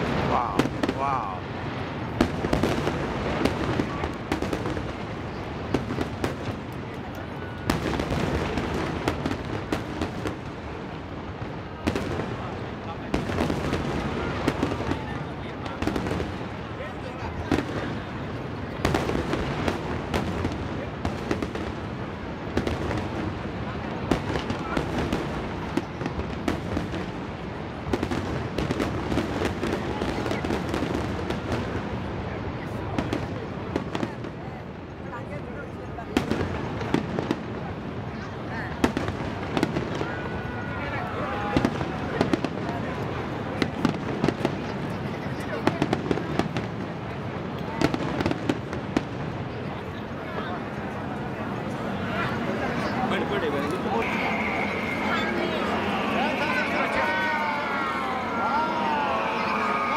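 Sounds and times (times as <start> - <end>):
firework bangs: 0.0 - 34.4, 36.0 - 49.9, 51.6 - 59.9
firework rumble and crackle: 0.0 - 59.9.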